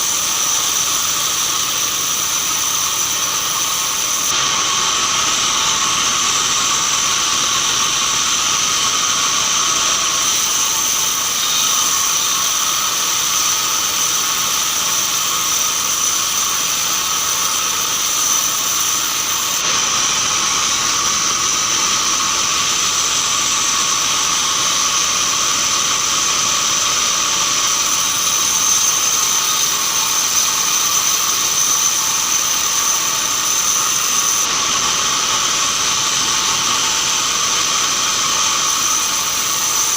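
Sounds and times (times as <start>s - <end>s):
band saw whining: 0.0s - 39.9s.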